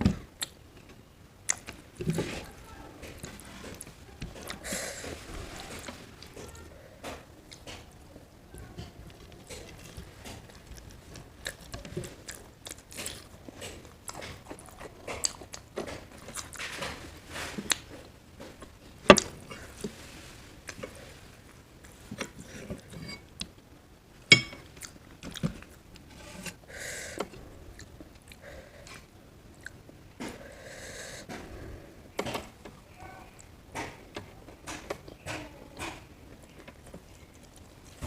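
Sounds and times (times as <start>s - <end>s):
chewing with wet smacks: 7.5s - 16.8s, 36.3s - 38.0s.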